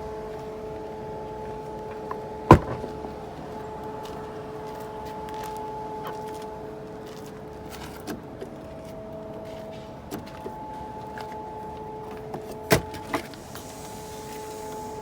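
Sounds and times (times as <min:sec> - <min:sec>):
sharp knock: 0:02.5 - 0:03.1
car cabin hum: 0:02.5 - 0:03.3.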